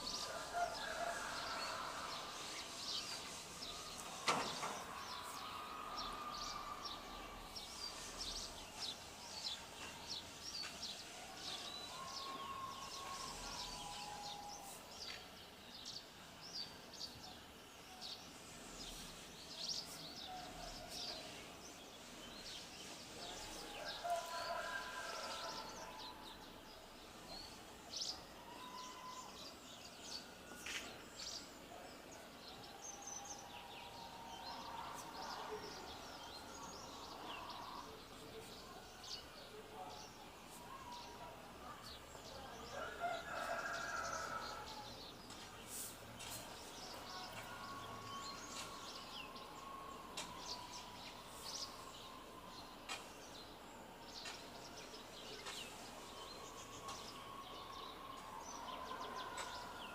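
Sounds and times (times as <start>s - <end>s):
outdoor background noise: 0.0s - 59.9s.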